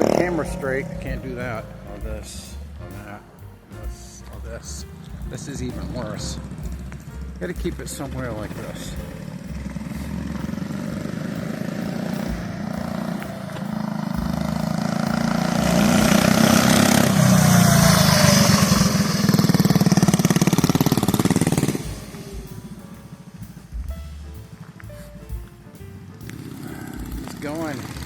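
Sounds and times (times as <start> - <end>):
mini bike engine running: 8.4 - 22.8, 26.3 - 28.0.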